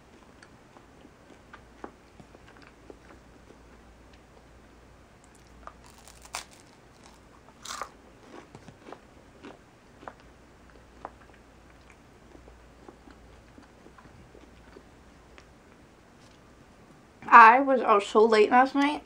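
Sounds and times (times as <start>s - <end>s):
crunching rice cake: 5.3s - 14.8s.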